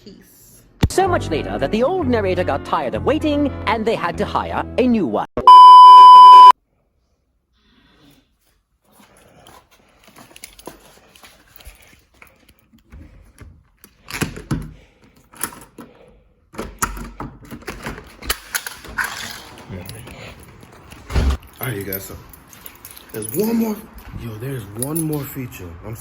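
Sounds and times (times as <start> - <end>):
electronic beep: 5.4 - 6.6.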